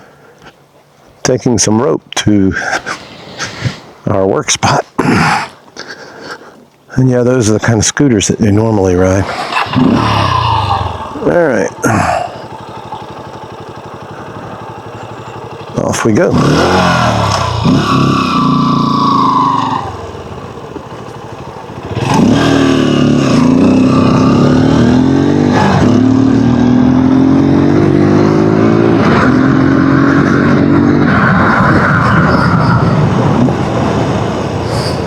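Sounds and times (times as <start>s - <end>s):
dirt bike engine accelerating: 9.0s - 35.0s.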